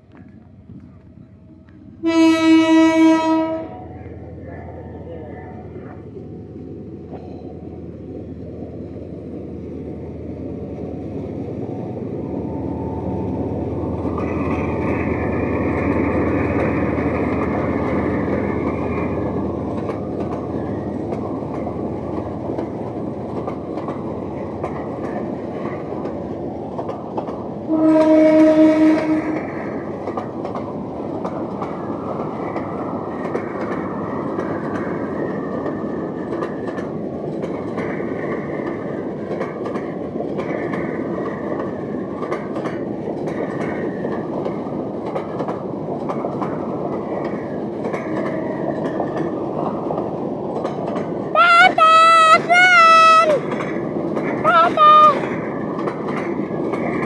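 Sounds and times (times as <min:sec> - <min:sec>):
train rumbling on rails: 0:00.0 - 0:57.0
locomotive horn blast: 0:02.0 - 0:03.8, 0:27.7 - 0:29.5.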